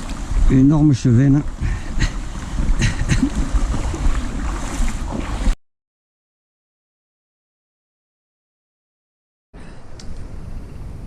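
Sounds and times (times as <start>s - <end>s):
wind rumble on microphone: 0.0s - 5.6s, 9.6s - 11.0s
outdoor noise: 9.6s - 11.0s.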